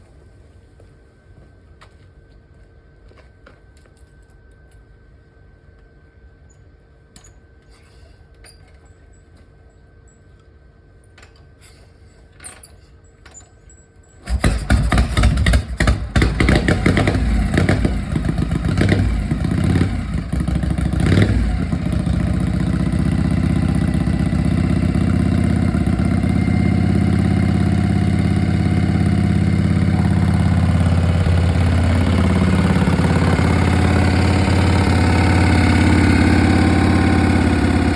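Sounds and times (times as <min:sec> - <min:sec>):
motorcycle engine revving and idling: 0:14.2 - 0:37.9.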